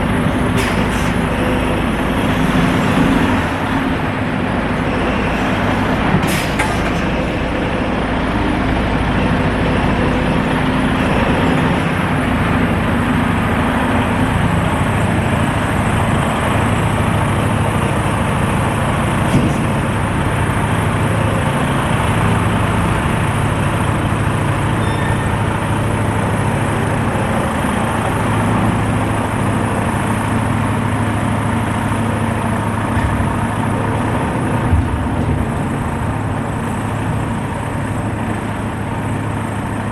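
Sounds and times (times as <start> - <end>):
truck engine drone: 0.0 - 39.9.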